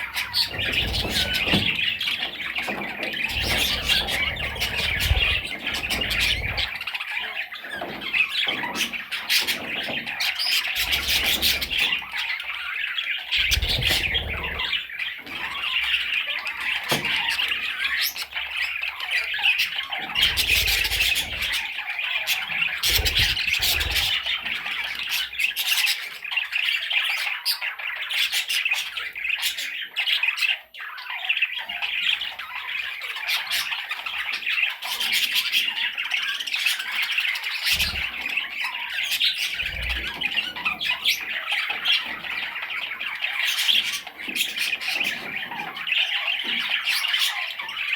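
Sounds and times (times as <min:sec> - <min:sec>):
budgerigar chattering and squawking: 0:00.0 - 0:47.9.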